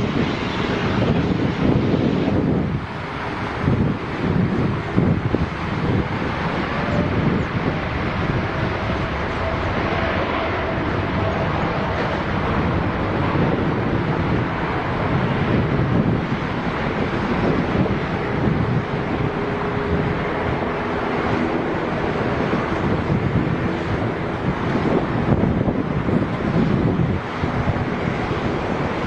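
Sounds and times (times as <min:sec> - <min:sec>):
jet airliner noise: 0:00.0 - 0:29.0
wind buffeting microphone: 0:00.0 - 0:29.0.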